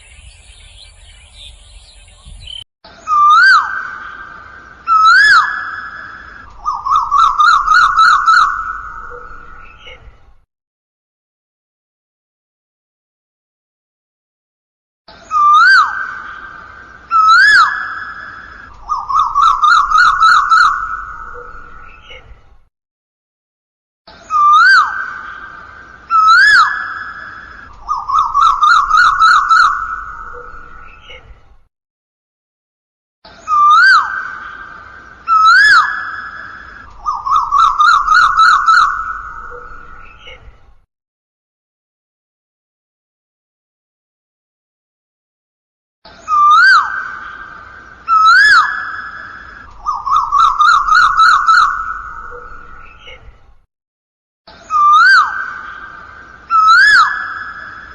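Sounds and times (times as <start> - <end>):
bird warbling trill: 0.0 - 2.6, 18.8 - 22.0, 27.8 - 31.1, 35.3 - 40.3, 48.1 - 53.1
bird whistles rising and dropping: 0.0 - 3.7, 33.4 - 34.4, 35.3 - 40.2, 46.2 - 47.0, 48.1 - 52.9, 54.6 - 55.4, 56.5 - 57.9
bird calling with whistled notes: 0.0 - 9.9, 15.1 - 22.2, 24.1 - 31.2, 33.3 - 40.5, 46.1 - 53.3, 54.5 - 57.9.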